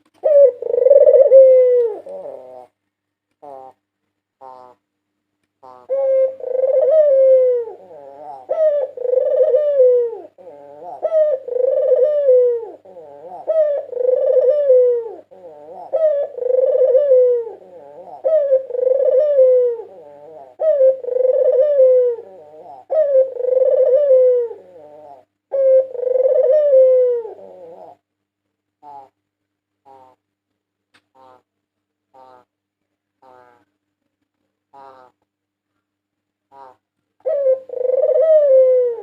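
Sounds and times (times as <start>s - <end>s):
dove cooing: 0.0s - 2.8s, 3.4s - 3.8s, 4.4s - 4.8s, 5.6s - 28.1s, 28.8s - 29.2s, 29.8s - 30.2s, 33.2s - 33.7s, 36.5s - 39.0s.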